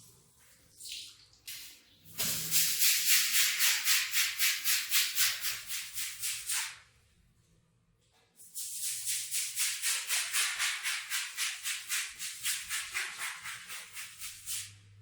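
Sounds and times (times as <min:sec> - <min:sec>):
brush scrubbing wet rug: 0:08.9 - 0:14.8.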